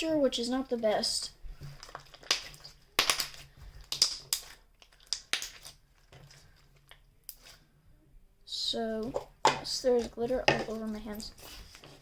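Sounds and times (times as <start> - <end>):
slime crackling squishes: 0.2 - 7.7.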